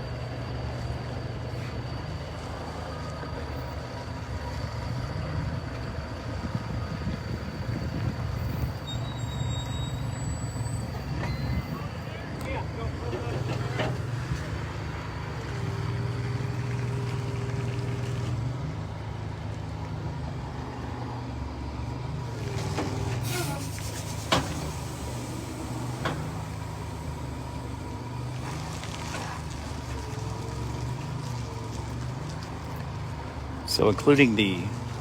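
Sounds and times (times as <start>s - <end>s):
diesel truck engine running: 0.0s - 35.0s
brief hiss: 23.2s - 26.5s.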